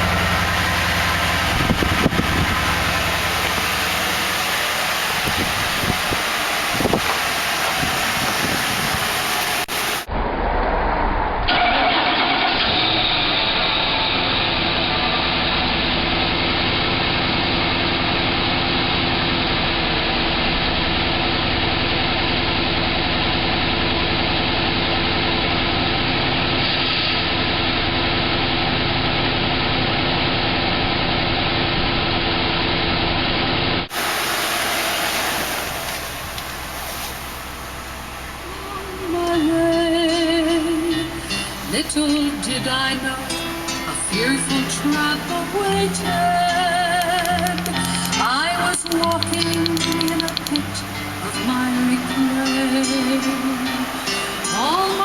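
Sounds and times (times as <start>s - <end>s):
car engine idling: 0.0s - 10.1s, 27.2s - 55.0s
starter cranking: 45.7s - 50.8s.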